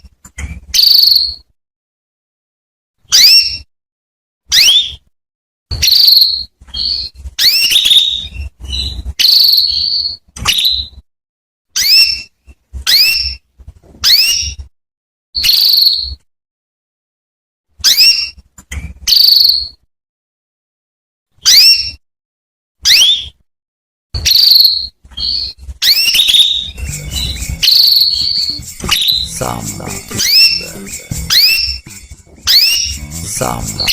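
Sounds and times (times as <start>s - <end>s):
canary chirping: 0.0s - 1.5s, 3.0s - 3.7s, 4.5s - 5.0s, 5.7s - 11.0s, 11.8s - 14.7s, 15.4s - 16.2s, 17.8s - 19.8s, 21.4s - 22.0s, 22.8s - 23.4s, 24.2s - 33.9s.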